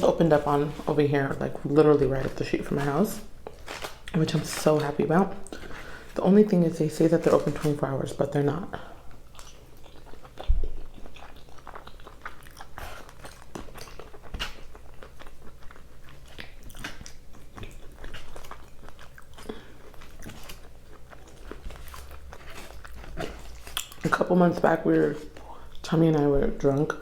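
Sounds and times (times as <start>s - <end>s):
person chewing food: 8.7s - 24.3s.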